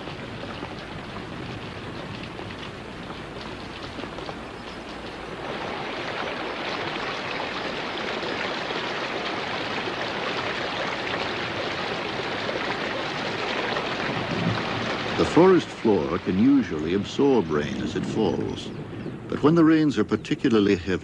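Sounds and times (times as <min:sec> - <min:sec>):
heavy rain on foliage: 0:00.0 - 0:21.0.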